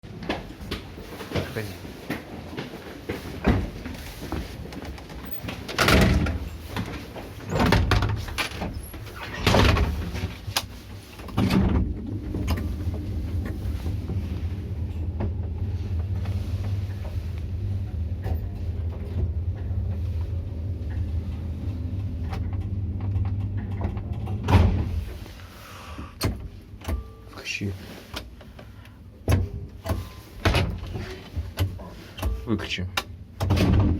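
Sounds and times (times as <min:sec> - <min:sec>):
elevator car humming: 0:04.9 - 0:27.3
elevator doors banging shut: 0:05.6 - 0:10.5, 0:17.9 - 0:25.1, 0:33.4 - 0:33.9.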